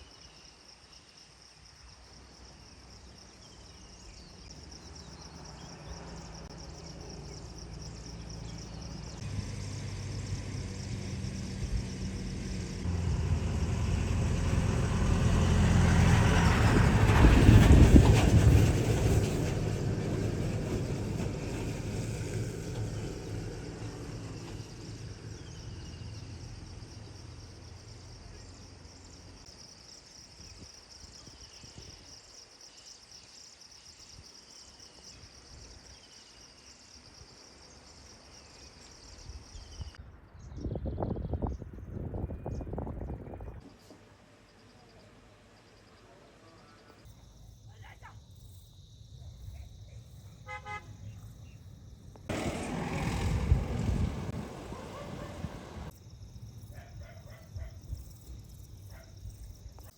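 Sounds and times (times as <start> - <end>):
vehicle passing by: 5.2 - 28.8, 52.2 - 55.9.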